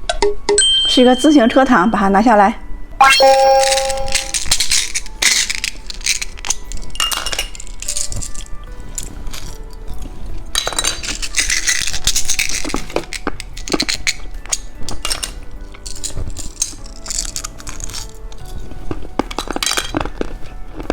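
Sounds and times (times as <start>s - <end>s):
light background music: 0.0s - 20.9s
plastic packaging clicking and crinkling: 4.3s - 20.9s.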